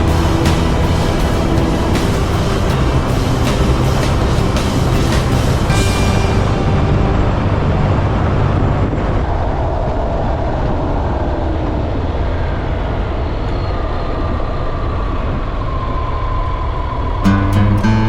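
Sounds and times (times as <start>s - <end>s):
motorcycle engine drone: 0.0s - 10.6s
wind noise: 0.0s - 17.8s.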